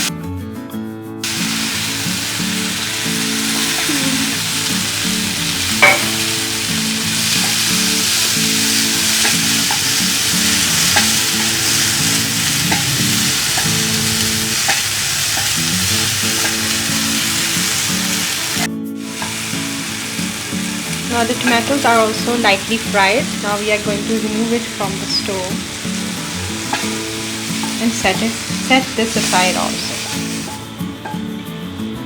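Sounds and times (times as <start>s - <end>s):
tomatoes sizzling in a frying pan: 1.2s - 32.0s
utensil clacking on pan: 5.7s - 16.7s, 25.8s - 28.2s
light taps on pan: 5.8s - 6.4s.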